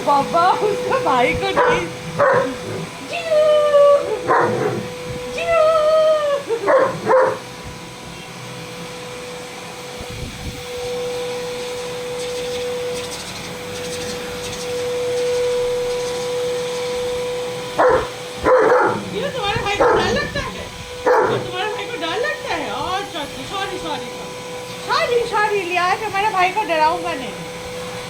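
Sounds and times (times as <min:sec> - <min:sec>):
vacuum cleaner humming: 0:00.0 - 0:28.0
dog whining: 0:01.0 - 0:07.5, 0:17.8 - 0:21.8
dog barking: 0:01.6 - 0:02.8, 0:04.2 - 0:04.9, 0:06.7 - 0:07.4, 0:17.8 - 0:21.6.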